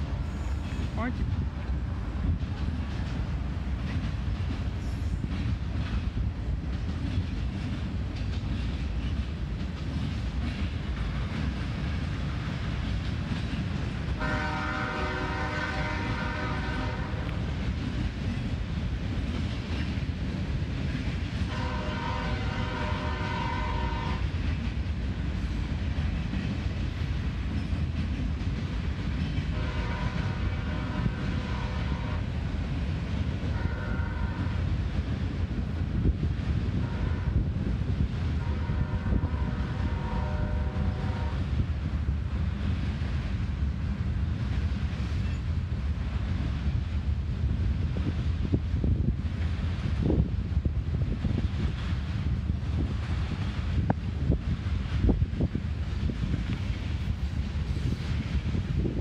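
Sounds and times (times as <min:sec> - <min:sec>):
freight train rumbling on rails: 0:00.0 - 0:59.0
locomotive horn blasts: 0:14.2 - 0:17.4, 0:21.5 - 0:24.2, 0:29.5 - 0:32.2, 0:33.6 - 0:34.6, 0:36.8 - 0:37.4, 0:38.4 - 0:41.4.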